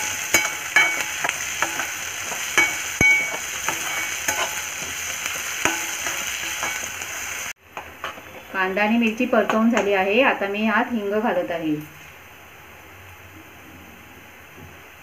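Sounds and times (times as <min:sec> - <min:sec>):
spatula scraping and tapping pan: 0:00.0 - 0:07.1, 0:07.7 - 0:10.1
onions sizzling in hot oil: 0:00.0 - 0:12.6.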